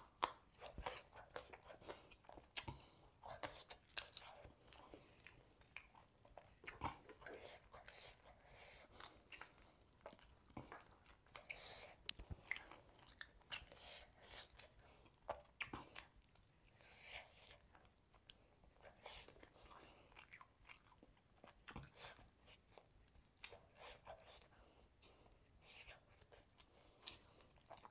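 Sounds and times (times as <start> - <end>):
person chewing food: 0.0 - 27.9.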